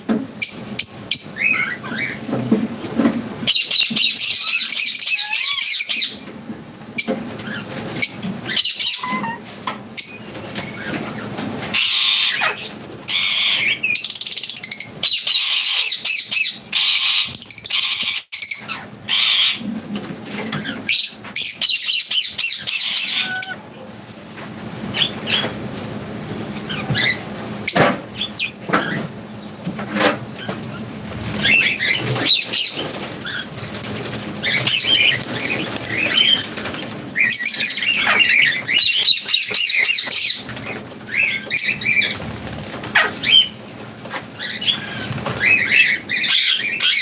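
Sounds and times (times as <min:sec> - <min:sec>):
wings flapping: 0:07.0 - 0:13.8, 0:29.8 - 0:47.0
small birds chirping: 0:07.0 - 0:19.7, 0:30.3 - 0:47.0
sharp clicks and scrabbling: 0:24.2 - 0:46.1.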